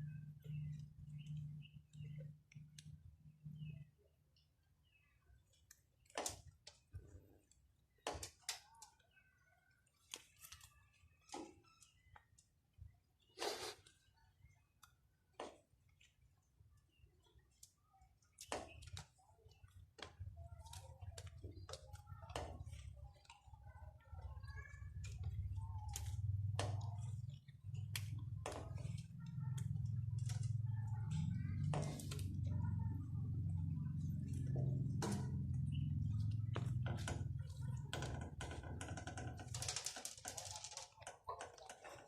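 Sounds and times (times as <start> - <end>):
low motor hum: 24.8 - 39.5.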